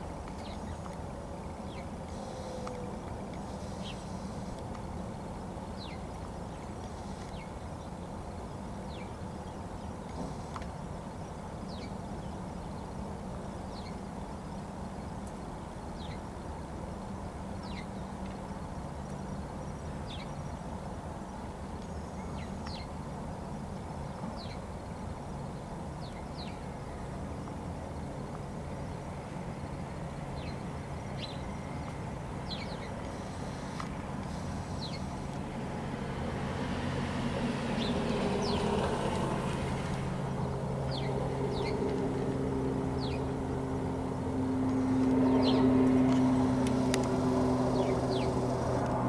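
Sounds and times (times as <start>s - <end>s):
distant traffic rumble: 0.0s - 49.0s
small bird chirping: 47.7s - 48.8s.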